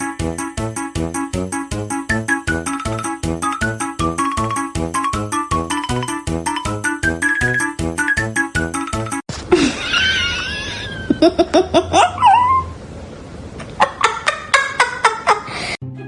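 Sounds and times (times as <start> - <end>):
plucky background music: 0.0 - 9.2
person laughing: 9.4 - 12.5, 13.7 - 15.8.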